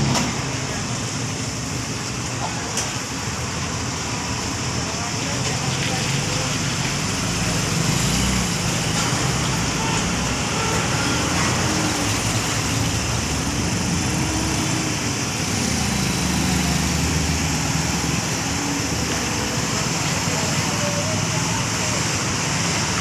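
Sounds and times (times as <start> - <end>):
road noise hiss: 0.0 - 23.0.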